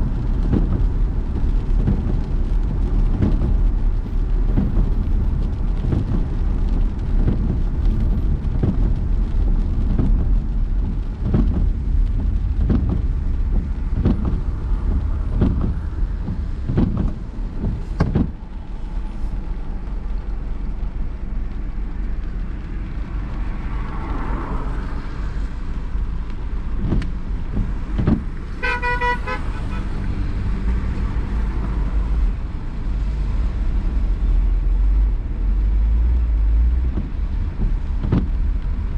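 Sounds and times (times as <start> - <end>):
car engine and road noise: 0.0 - 38.9
car horn beeping: 28.6 - 30.0.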